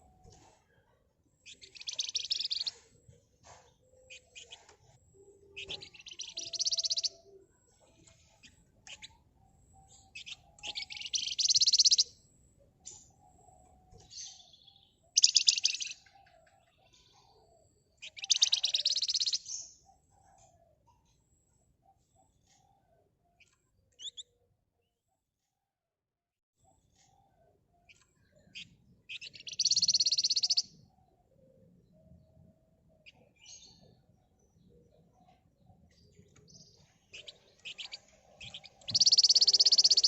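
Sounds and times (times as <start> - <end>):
songbird rattling trills: 1.4 - 2.8, 4.1 - 4.7, 5.5 - 7.4, 10.0 - 12.1, 15.1 - 16.0, 18.0 - 19.4, 27.9 - 30.8, 36.7 - 40.0
soft bird chips: 1.4 - 2.9, 3.5 - 4.9, 10.2 - 12.0, 18.0 - 19.4, 37.1 - 40.0.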